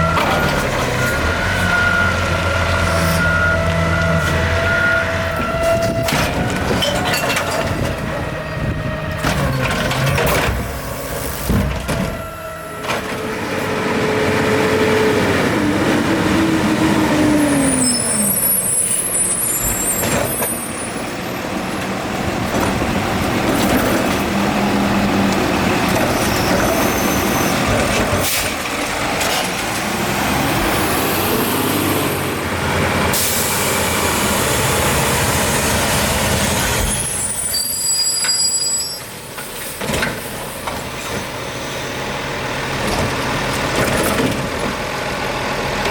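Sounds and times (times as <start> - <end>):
high squeals: 17.4 - 21.1, 26.1 - 27.7, 36.8 - 39.2.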